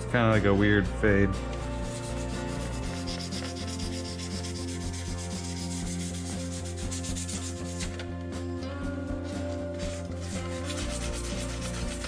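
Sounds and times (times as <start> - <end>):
sandpaper rubbing: 1.8 - 8.0, 9.2 - 12.0.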